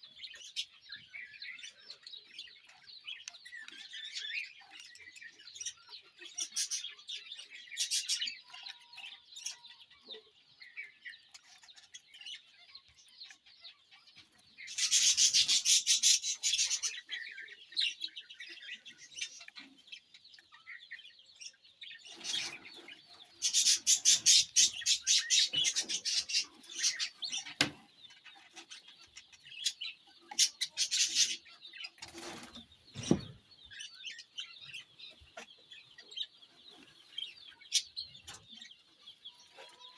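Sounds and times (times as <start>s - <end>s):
lovebirds chirping: 0.0s - 39.9s
shrill bird chattering: 14.7s - 17.2s, 22.1s - 32.0s.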